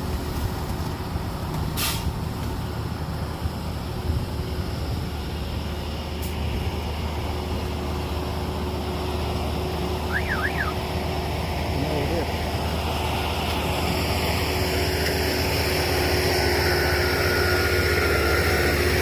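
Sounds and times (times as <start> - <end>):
diesel machinery engine running: 0.0 - 19.0
high two-note chirp: 10.1 - 10.8.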